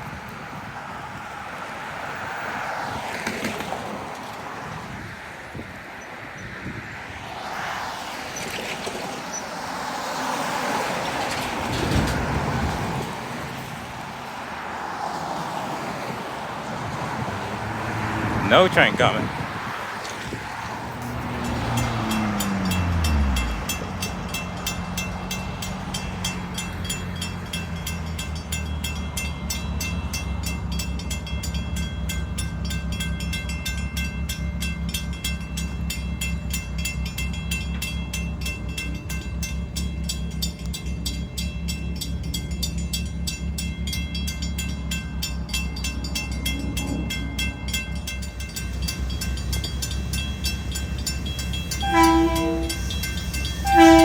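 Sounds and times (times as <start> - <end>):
diesel engine rumbling: 8.2 - 54.0
train horn blasts: 51.8 - 53.0, 53.6 - 54.0.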